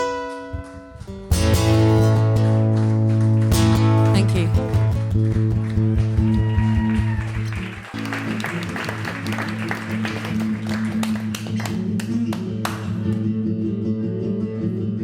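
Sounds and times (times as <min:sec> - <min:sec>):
acoustic guitar low notes: 0:00.0 - 0:15.0
audience clapping: 0:02.4 - 0:13.2.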